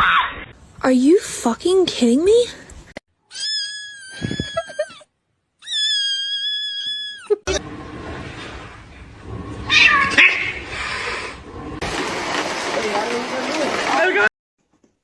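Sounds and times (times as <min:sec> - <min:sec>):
kitten meowing: 0:03.3 - 0:05.0, 0:05.6 - 0:07.3, 0:09.7 - 0:10.4.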